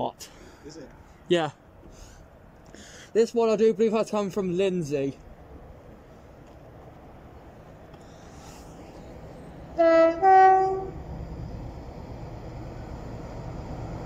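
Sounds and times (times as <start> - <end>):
locomotive low rumble: 5.2 - 14.0
locomotive two-tone horn: 9.7 - 11.0.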